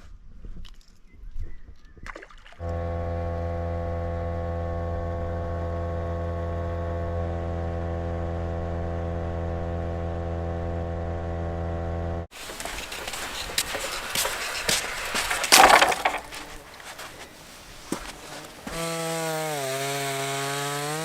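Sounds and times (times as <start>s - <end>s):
outboard motor idling: 2.6s - 17.2s.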